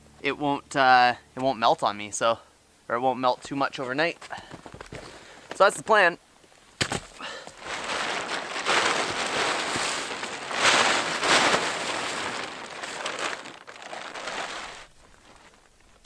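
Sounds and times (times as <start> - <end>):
tarp rustling and crinkling: 3.7 - 16.0.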